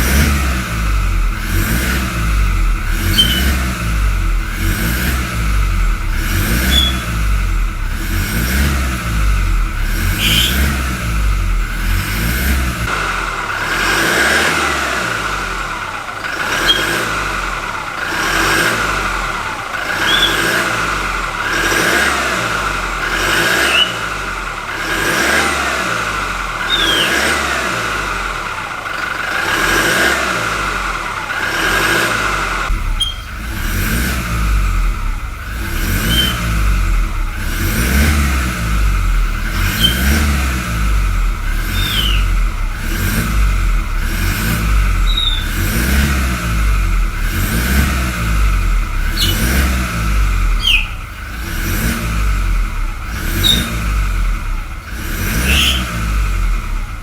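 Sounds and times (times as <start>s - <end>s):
diesel engine revving: 0.0s - 57.0s
turbo whistle: 3.0s - 3.7s, 6.6s - 7.2s, 10.1s - 10.8s, 16.6s - 16.9s, 20.0s - 20.7s, 23.6s - 24.1s, 26.6s - 27.4s, 32.9s - 33.4s, 36.0s - 36.5s, 39.7s - 40.2s, 41.6s - 42.5s, 45.0s - 45.7s, 49.0s - 49.7s, 50.5s - 51.2s, 53.3s - 53.8s, 55.3s - 56.0s.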